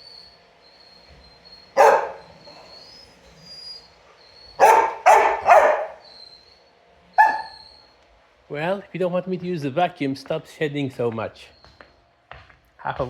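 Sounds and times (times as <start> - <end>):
dog barking: 1.8 - 2.9, 4.6 - 6.1, 7.2 - 7.7.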